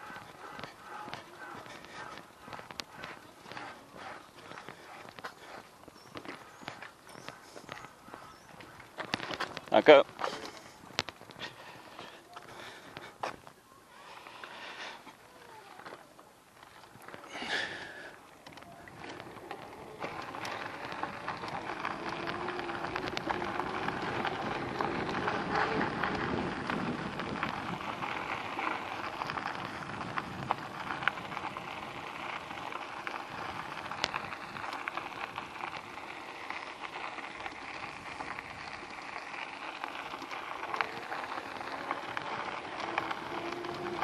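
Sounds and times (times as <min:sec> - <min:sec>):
tyres rolling on road: 0:00.0 - 0:44.0
small ticks: 0:00.1 - 0:09.7.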